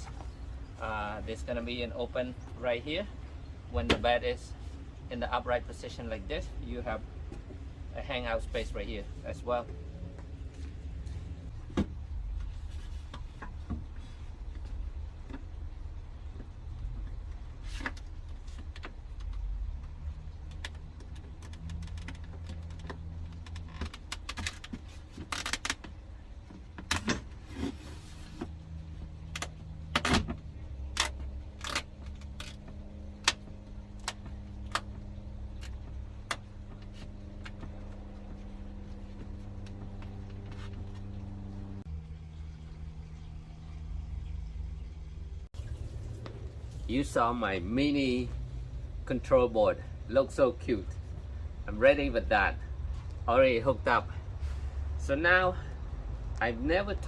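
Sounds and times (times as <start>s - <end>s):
low hum changing pitch: 36.5s - 46.8s.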